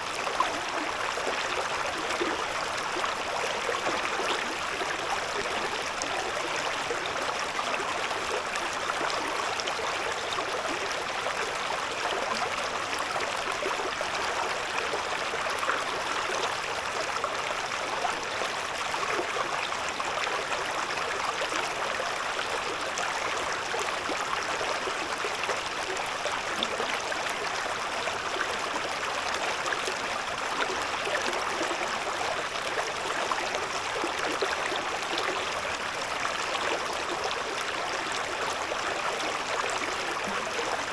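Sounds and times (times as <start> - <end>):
river babbling over stones: 0.0 - 40.9.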